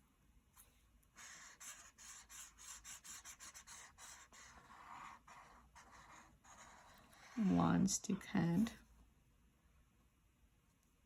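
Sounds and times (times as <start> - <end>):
drawing tool strokes on paper: 0.6 - 8.0.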